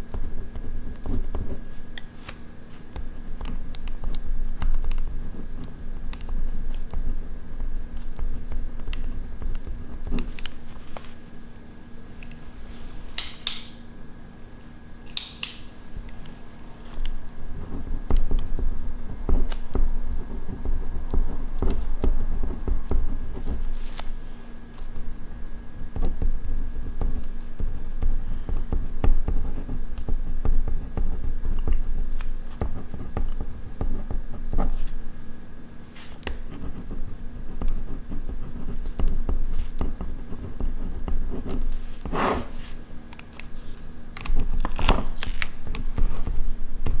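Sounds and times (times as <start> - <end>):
faint steady hum: 0.0 - 47.0
ballpoint pen scratching on paper: 36.4 - 42.7.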